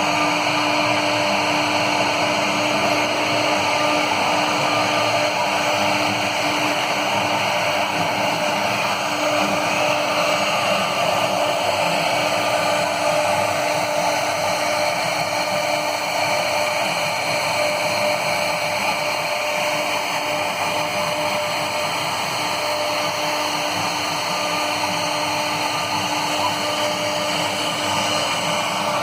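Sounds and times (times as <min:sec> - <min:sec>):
cnc router whirring: 0:00.0 - 0:29.0.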